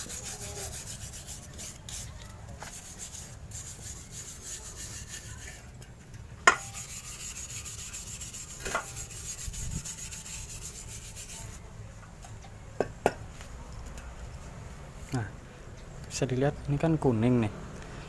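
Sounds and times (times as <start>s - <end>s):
wire brush scrubbing metal: 0.0s - 11.6s.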